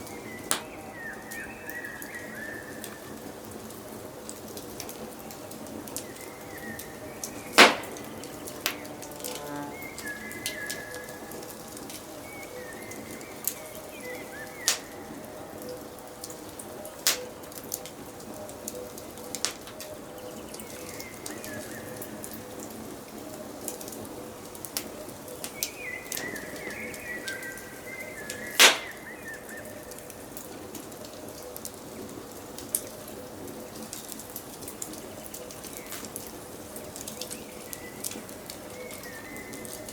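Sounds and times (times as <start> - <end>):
fire popping: 0.0 - 22.5, 24.4 - 39.9
wood fire crackling: 0.0 - 39.9
birds chirping: 5.0 - 15.2, 25.4 - 30.2.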